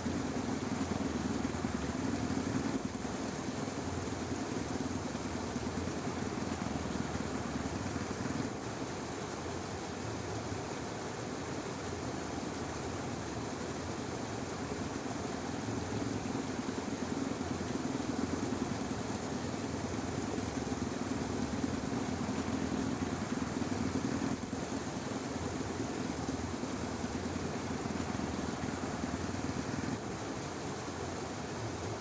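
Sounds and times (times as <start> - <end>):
outdoor background noise: 0.0 - 32.0
distant motor hum: 15.4 - 31.2.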